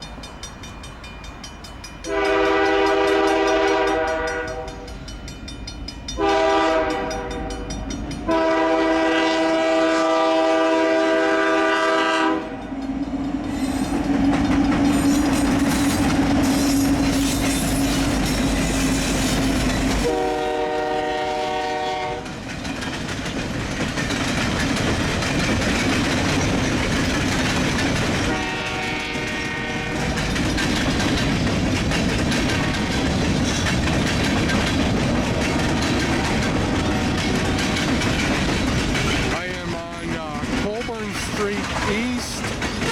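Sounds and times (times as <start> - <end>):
wheels clattering on rails: 0.0 - 9.0, 12.6 - 42.9
locomotive air horn chord: 2.1 - 4.9, 6.2 - 7.7, 8.3 - 12.6, 20.0 - 22.3, 28.3 - 30.2.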